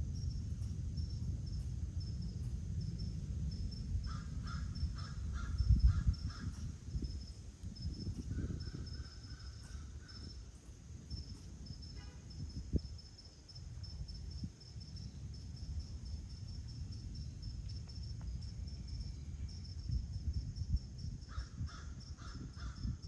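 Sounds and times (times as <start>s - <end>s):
low background rumble: 0.0s - 8.0s
crow cawing: 4.1s - 6.5s.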